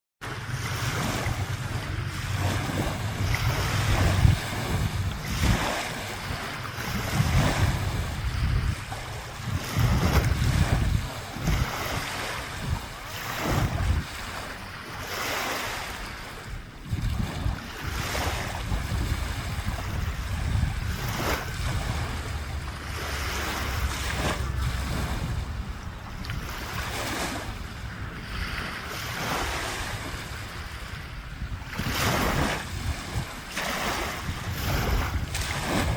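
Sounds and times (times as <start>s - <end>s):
lake waves splashing: 0.2s - 35.9s
wind buffeting microphone: 0.2s - 35.9s.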